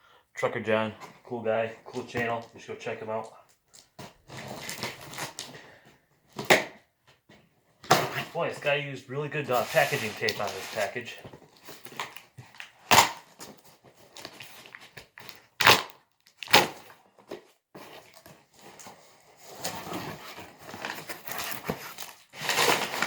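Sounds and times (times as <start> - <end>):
cardboard and paper rustling: 3.7 - 5.8, 9.4 - 15.6, 16.8 - 23.0
packing tape ripping: 4.3 - 5.5, 11.7 - 17.0, 19.5 - 23.0
scraping and handling: 9.4 - 12.6, 17.1 - 23.0.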